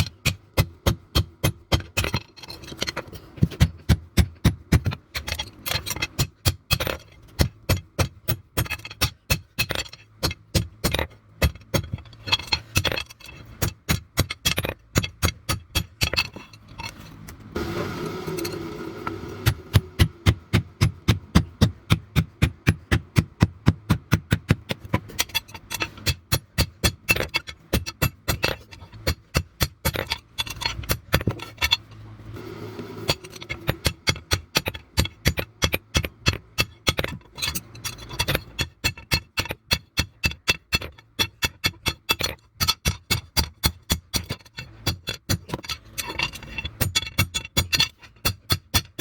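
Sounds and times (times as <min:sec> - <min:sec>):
scraping sound: 0:16.3 - 0:20.1, 0:30.0 - 0:34.0.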